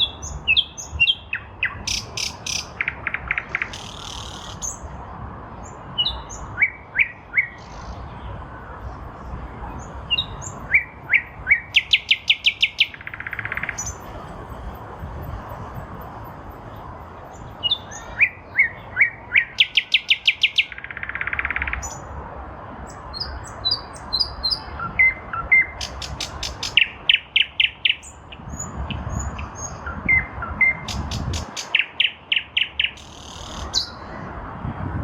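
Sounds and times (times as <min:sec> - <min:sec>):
nightingale singing: 0:00.0 - 0:04.8, 0:06.0 - 0:08.0, 0:10.1 - 0:14.1, 0:17.4 - 0:22.1, 0:22.9 - 0:34.1.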